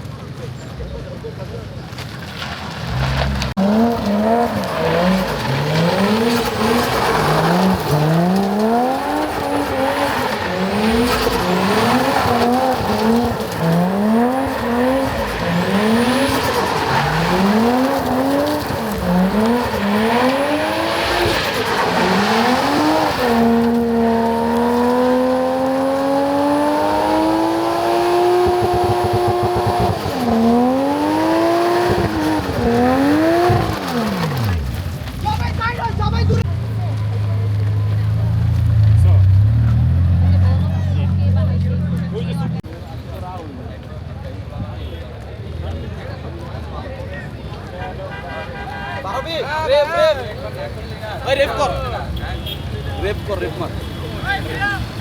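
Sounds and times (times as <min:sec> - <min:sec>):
car engine revving: 0:02.6 - 0:35.5.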